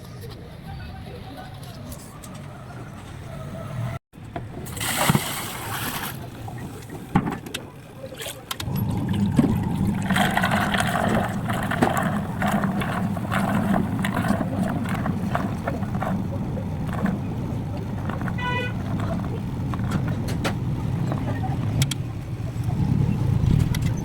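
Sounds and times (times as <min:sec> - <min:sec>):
water churning and splashing: 0:04.5 - 0:24.0
washing machine motor hum: 0:08.6 - 0:23.4.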